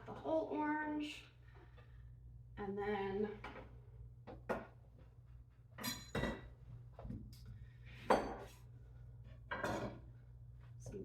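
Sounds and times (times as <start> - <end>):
utensils and dishes clinking: 5.8 - 6.5.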